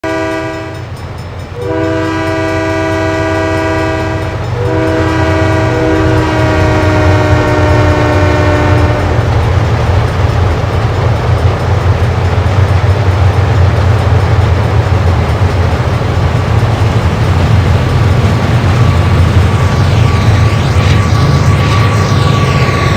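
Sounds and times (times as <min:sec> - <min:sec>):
locomotive air horn chord: 0:00.0 - 0:00.9, 0:01.6 - 0:09.4
diesel locomotives rumbling: 0:00.0 - 0:22.9.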